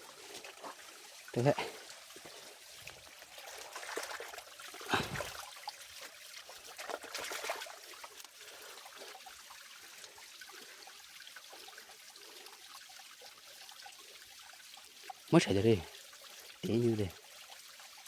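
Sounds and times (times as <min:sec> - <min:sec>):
water sloshing: 0:00.0 - 0:08.8
water trickling: 0:00.0 - 0:18.0.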